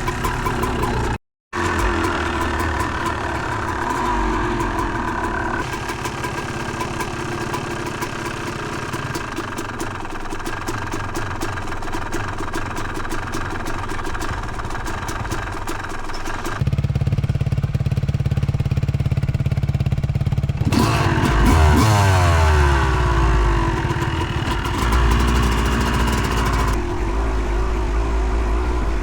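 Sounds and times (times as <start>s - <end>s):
dirt bike engine running: 0.0s - 29.0s.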